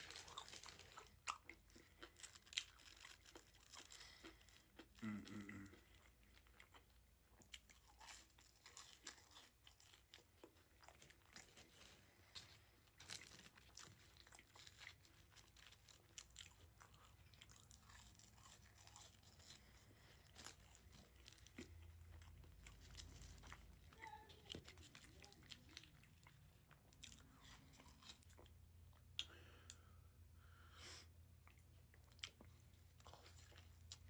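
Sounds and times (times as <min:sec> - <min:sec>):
person chewing crunchy food: 0:00.0 - 0:30.1, 0:31.2 - 0:34.0.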